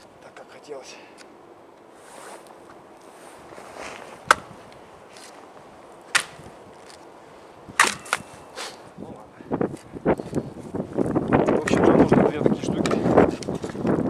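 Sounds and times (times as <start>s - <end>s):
axe chopping log: 6.1s - 6.4s, 7.8s - 8.3s.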